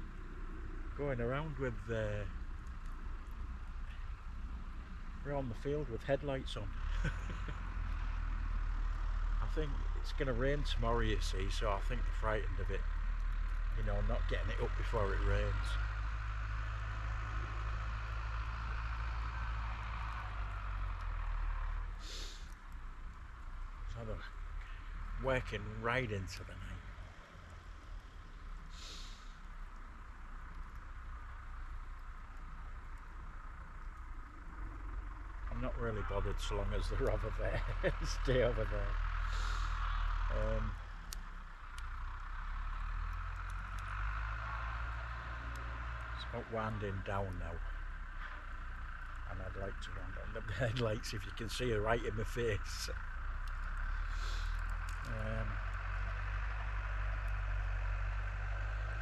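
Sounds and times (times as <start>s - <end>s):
distant tractor engines humming: 0.0s - 59.0s
faint sharp clicks: 2.6s - 4.3s, 12.9s - 13.8s, 19.6s - 23.5s, 40.8s - 46.2s, 53.3s - 59.0s
brief hiss: 28.7s - 29.4s.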